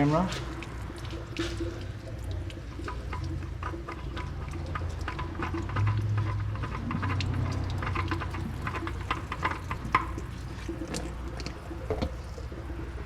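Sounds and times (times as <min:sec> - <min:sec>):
oil dripping into a can: 0:00.0 - 0:13.0.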